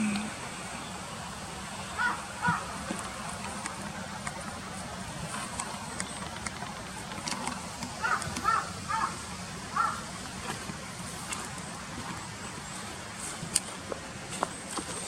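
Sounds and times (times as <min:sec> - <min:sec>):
crow cawing: 0:02.0 - 0:02.7, 0:08.0 - 0:10.0.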